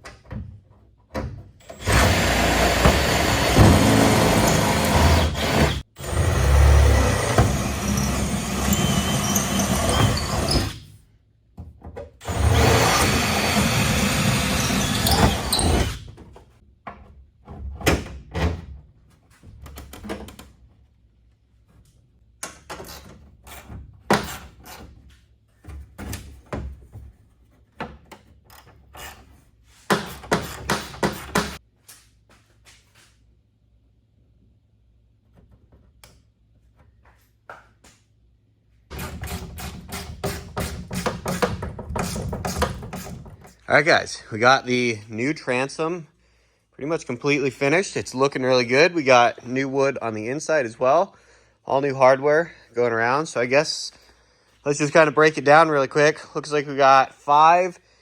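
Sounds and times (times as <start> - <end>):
power tool running: 1.6 - 10.8, 12.2 - 16.0
knocks and clicks of handwork: 29.8 - 31.6, 38.9 - 43.6.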